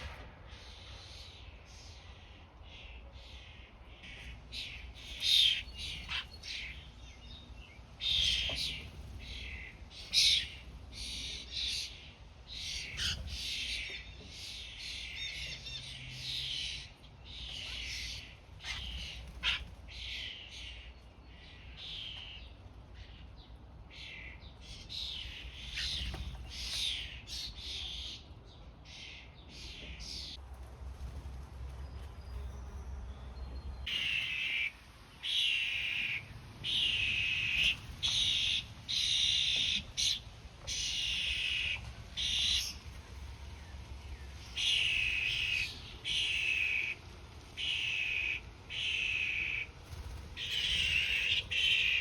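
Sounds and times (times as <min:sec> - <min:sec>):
songbirds singing and chirping: 0:00.0 - 0:30.4, 0:31.0 - 0:52.0.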